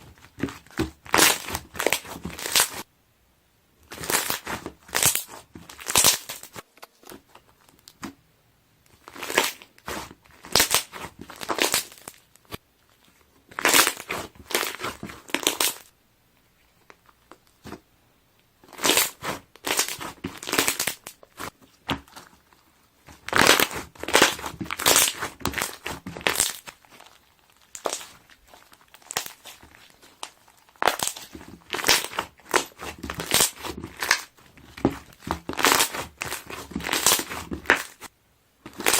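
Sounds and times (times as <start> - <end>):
slime squeezed with bubbles popping: 23.1 - 38.0.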